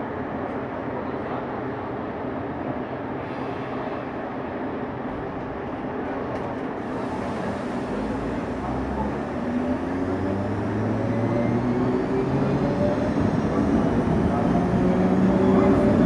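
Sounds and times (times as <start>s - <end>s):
train running rumble: 5.0s - 16.0s.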